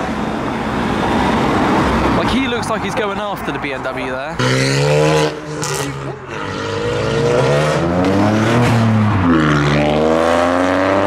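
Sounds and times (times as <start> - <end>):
car engine accelerating hard: 4.4 - 11.0.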